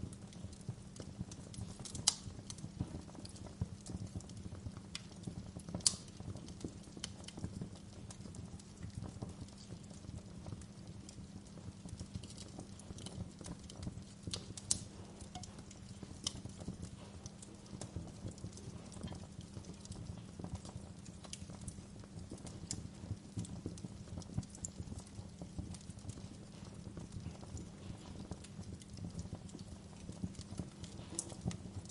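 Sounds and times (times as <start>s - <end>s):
low rumble of fire burning: 0.0s - 31.9s
wood fire crackling: 0.0s - 31.9s.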